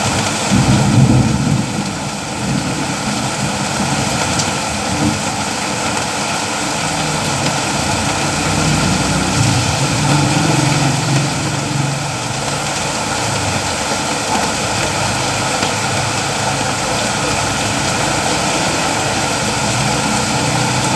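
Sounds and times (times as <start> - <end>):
rain hiss: 0.0 - 20.9
low engine hum: 5.5 - 13.8.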